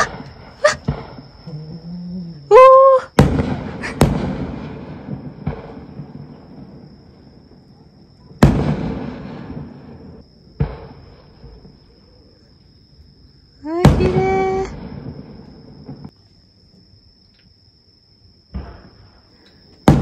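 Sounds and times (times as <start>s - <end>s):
fireworks bursting with rumbling echo: 0.0s - 1.5s, 3.1s - 12.3s, 13.7s - 16.2s, 18.4s - 20.0s.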